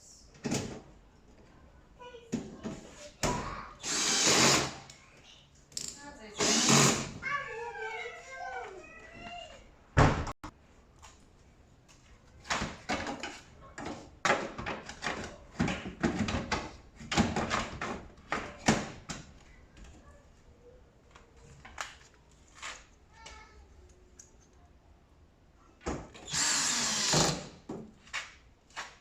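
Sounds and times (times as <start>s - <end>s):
clunks and knocks of dryer parts: 12.4s - 19.3s.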